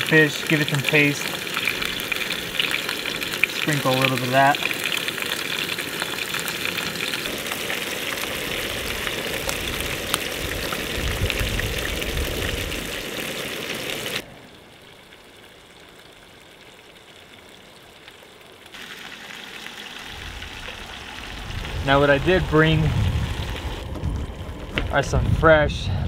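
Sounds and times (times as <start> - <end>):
fish sizzling in a pan: 0.1 - 11.0, 18.8 - 21.4.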